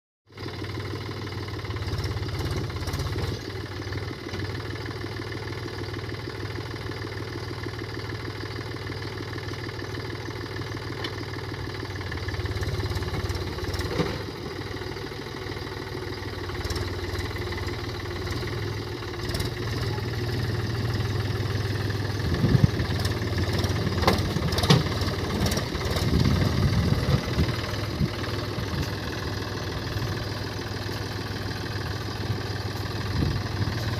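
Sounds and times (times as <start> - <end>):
tractor diesel engine idling: 0.3 - 33.9.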